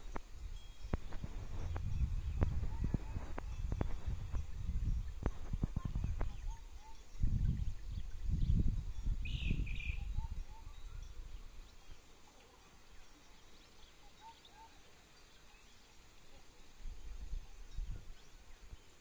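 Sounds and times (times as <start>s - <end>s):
wind gusts on microphone: 0.0s - 11.7s, 16.8s - 19.0s
bird chirps: 5.0s - 16.0s.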